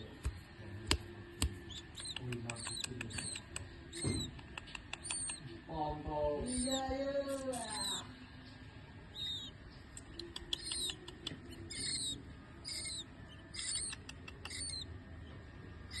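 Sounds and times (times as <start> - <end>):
sharp clicks: 0.2 - 5.5, 9.9 - 12.1, 13.6 - 14.8
owl chicks calling: 1.4 - 8.2, 9.1 - 16.0.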